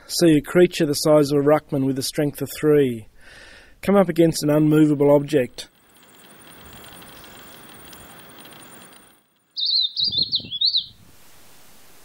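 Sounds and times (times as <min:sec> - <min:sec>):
steady outdoor hiss: 0:00.0 - 0:12.0
bird chirping: 0:05.7 - 0:11.0.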